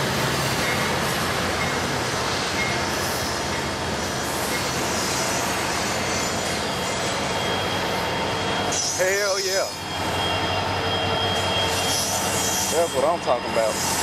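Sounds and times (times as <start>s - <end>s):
locomotive engine rumble: 0.0s - 14.0s
steel wheels rolling on rails: 0.0s - 14.0s.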